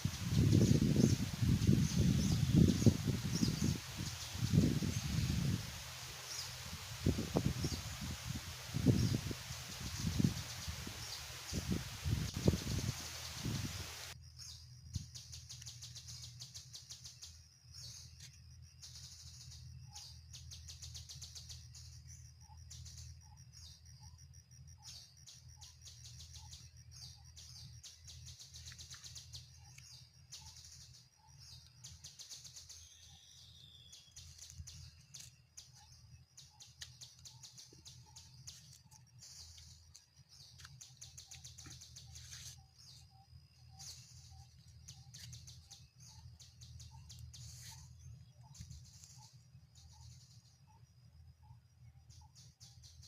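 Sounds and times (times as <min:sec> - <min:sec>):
lower bird calls: 0:00.0 - 0:18.2
small birds chirping: 0:00.0 - 0:53.0.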